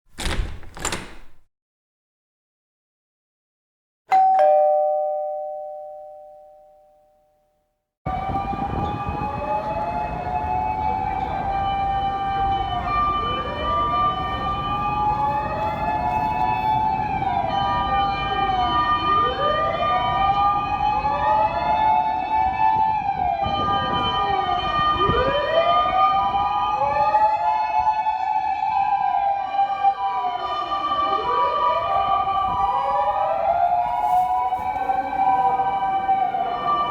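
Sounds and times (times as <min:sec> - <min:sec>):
two-tone siren: 0:08.1 - 0:36.9
wailing sirens: 0:08.1 - 0:36.9.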